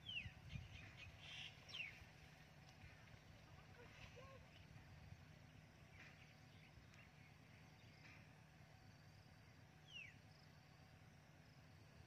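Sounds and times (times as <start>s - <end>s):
small bird chirps: 0.0s - 2.1s, 9.8s - 10.2s.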